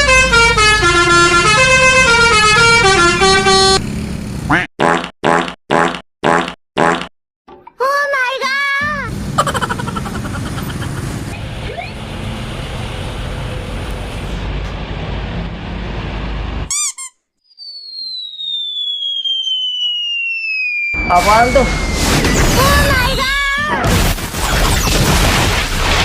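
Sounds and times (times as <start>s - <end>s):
road traffic: 0.0s - 4.7s, 8.8s - 17.2s
heavy vehicle engine rumbling: 9.0s - 16.7s
short chirp: 16.7s - 20.4s
falling whistle: 16.7s - 23.3s.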